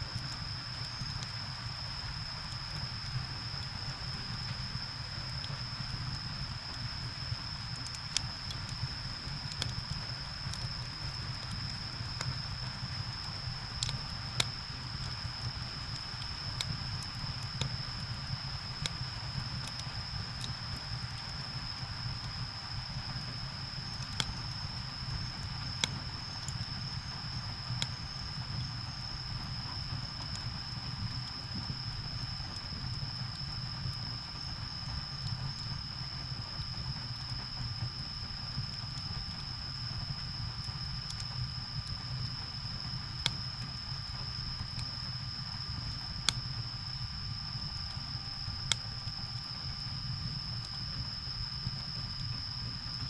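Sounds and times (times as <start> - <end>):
low rumble of flames: 0.0 - 53.0
steady high-pitched whine: 0.0 - 53.0
wood fire burning: 0.0 - 53.0
firewood crackling pops: 13.8 - 15.2.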